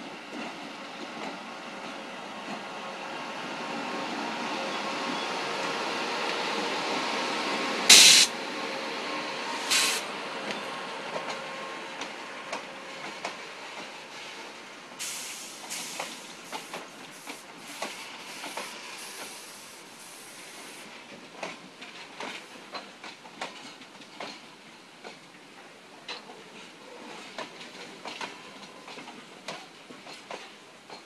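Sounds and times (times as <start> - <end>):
high hiss: 7.9 - 8.4.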